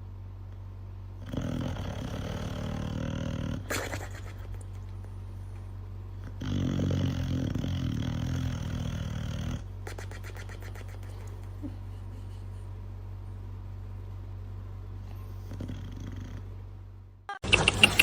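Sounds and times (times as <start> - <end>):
steady low hum: 0.0 - 18.0
dog snoring: 1.2 - 3.9, 6.2 - 9.7, 15.1 - 16.5.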